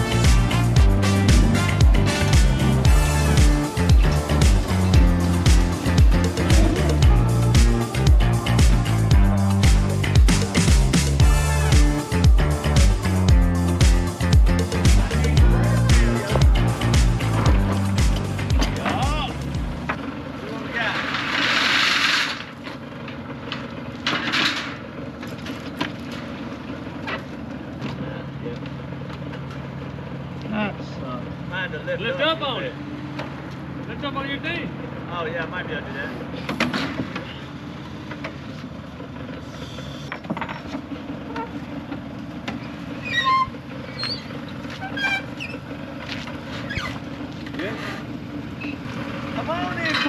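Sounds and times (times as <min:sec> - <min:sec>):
vehicle engine running: 0:00.0 - 0:50.0
clanks and knocks: 0:17.3 - 0:20.0, 0:40.1 - 0:48.1
high-pitched squeaks: 0:42.9 - 0:45.7, 0:46.5 - 0:48.0.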